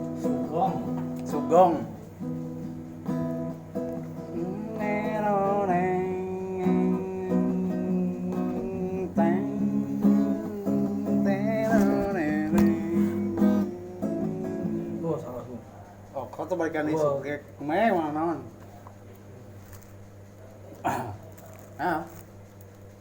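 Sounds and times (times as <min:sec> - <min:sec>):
acoustic guitar strumming: 0:00.0 - 0:15.8
sliding melody line: 0:03.4 - 0:15.4.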